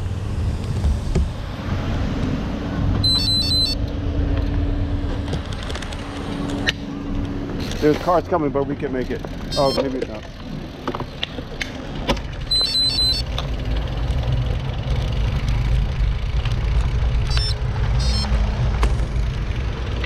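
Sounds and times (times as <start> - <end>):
road traffic rumble: 0.0 - 20.0
short electronic beeps: 3.0 - 3.8, 9.5 - 10.0, 12.5 - 13.3, 17.3 - 18.4.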